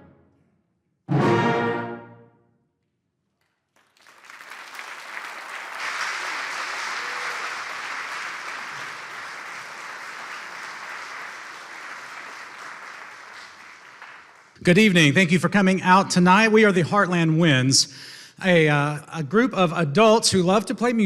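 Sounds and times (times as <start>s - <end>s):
audience applauding: 3.4s - 15.2s.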